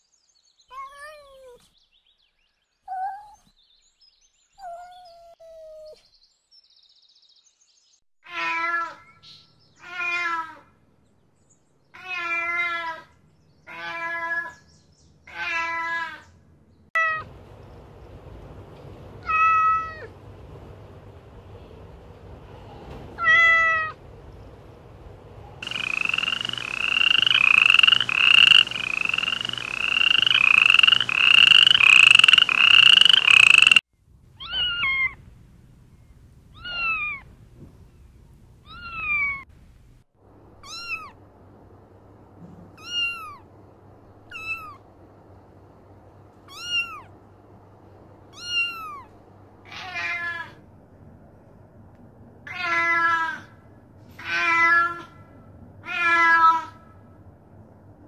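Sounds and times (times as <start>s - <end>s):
kittens meowing: 23.2s - 24.0s, 34.4s - 35.2s, 36.6s - 37.2s, 38.6s - 39.4s, 40.6s - 41.2s, 42.8s - 43.4s, 44.3s - 44.8s, 46.5s - 47.1s, 48.3s - 49.1s, 55.8s - 56.8s.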